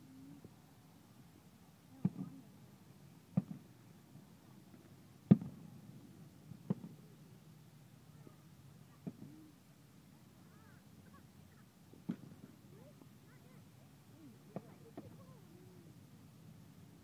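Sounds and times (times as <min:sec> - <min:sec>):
distant firework bangs: 0:03.3 - 0:03.7, 0:05.2 - 0:05.7, 0:11.9 - 0:12.6.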